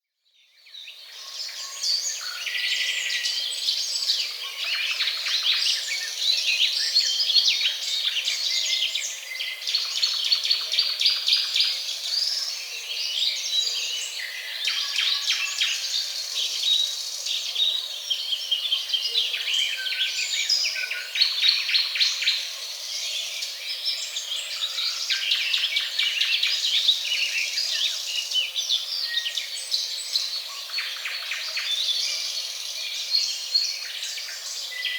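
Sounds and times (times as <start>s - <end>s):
small birds chirping chorus: 0.0s - 34.9s.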